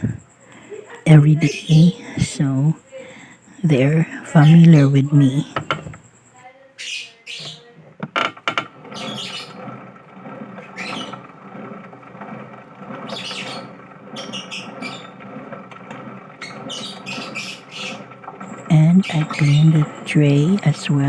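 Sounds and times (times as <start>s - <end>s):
background hum: 0.0s - 21.0s
cage birds chirping and squawking: 6.8s - 7.8s, 8.9s - 9.6s, 10.6s - 11.3s, 13.0s - 15.3s, 16.4s - 19.9s.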